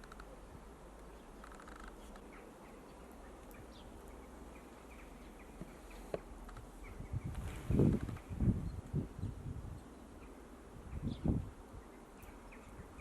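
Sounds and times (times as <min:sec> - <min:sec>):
rustling: 0:00.0 - 0:03.6, 0:05.2 - 0:08.5
finches chirping: 0:01.0 - 0:13.0.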